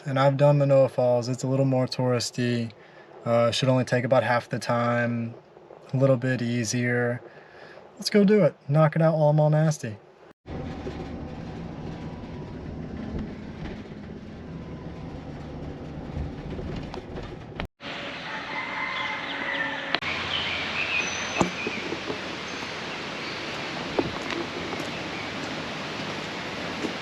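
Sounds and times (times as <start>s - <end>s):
vehicle road rumble: 10.0s - 27.0s
birds chirping and calling: 18.8s - 23.7s.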